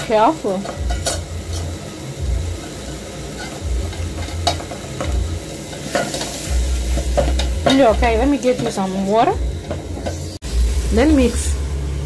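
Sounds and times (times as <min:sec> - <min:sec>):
food sizzling in a pot: 0:00.0 - 0:12.0
spoon scraping a pot: 0:02.6 - 0:08.8.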